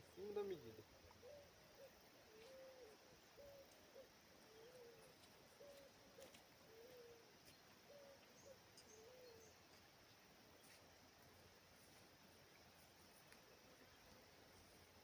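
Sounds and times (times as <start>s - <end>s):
faint bird hooting: 0.1s - 9.6s.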